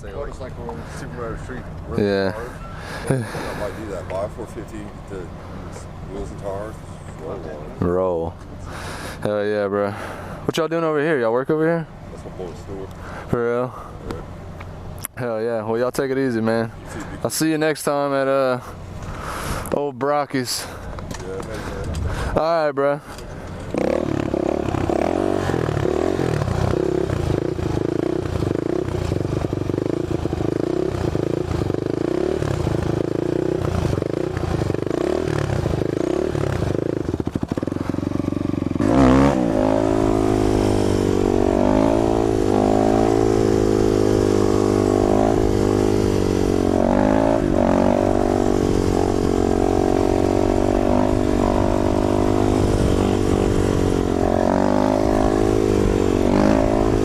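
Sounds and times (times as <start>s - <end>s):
motorcycle engine revving: 0.0s - 13.4s, 23.2s - 57.0s.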